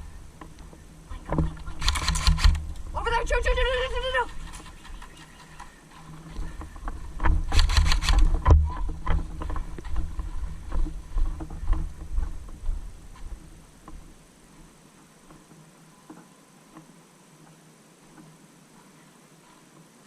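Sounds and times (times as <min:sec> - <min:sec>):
wind and movement rumble: 0:00.0 - 0:15.7
clicks and rustling: 0:00.4 - 0:02.9, 0:03.8 - 0:12.6
airsoft gun rapid fire: 0:01.8 - 0:02.6, 0:07.5 - 0:08.3.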